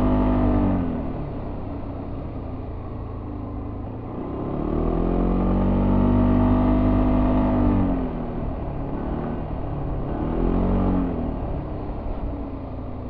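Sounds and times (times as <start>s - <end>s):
scooter engine revving: 0.0s - 2.1s
road and wind noise: 0.0s - 13.0s.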